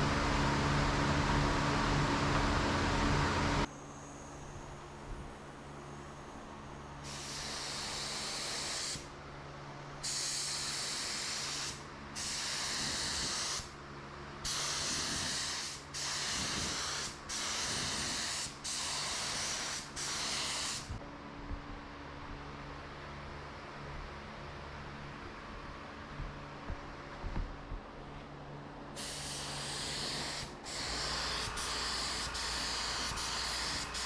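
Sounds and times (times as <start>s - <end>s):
steady low hum: 0.0s - 14.6s, 20.7s - 34.0s
spray paint hissing: 7.0s - 9.1s, 10.0s - 13.7s, 14.5s - 21.0s, 29.0s - 34.0s.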